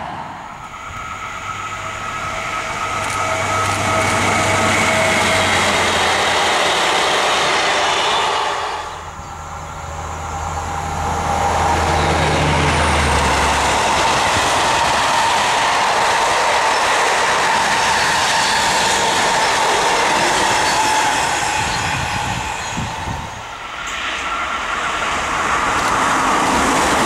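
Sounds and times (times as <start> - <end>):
high whine from wheels: 0.0 - 27.0
train wheels clacking over rail joints: 11.9 - 23.0.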